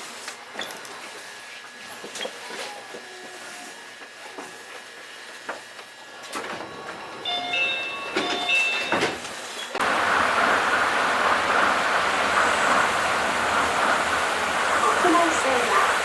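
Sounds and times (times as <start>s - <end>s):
train rushing running noise: 6.8s - 16.0s.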